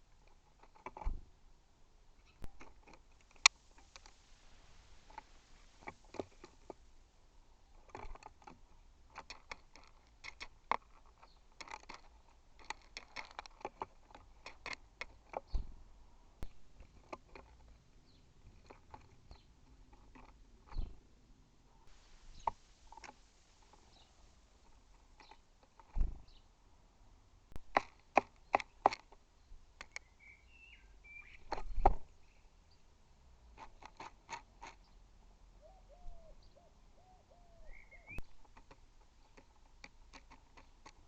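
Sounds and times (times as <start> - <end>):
beaks pecking on feeder: 7.7 - 15.7, 21.9 - 26.4, 27.6 - 32.4, 37.6 - 41.0.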